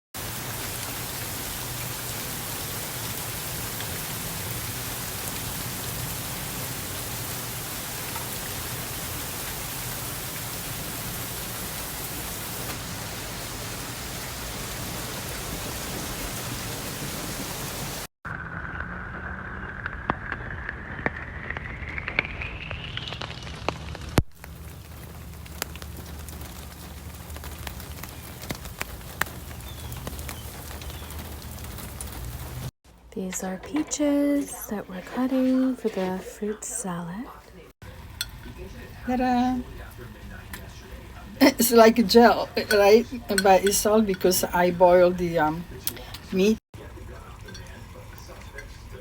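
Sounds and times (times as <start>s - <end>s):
rain falling: 0.2s - 18.1s, 22.2s - 32.7s, 37.8s - 49.0s
faint rising whistle-like tone: 18.5s - 23.7s.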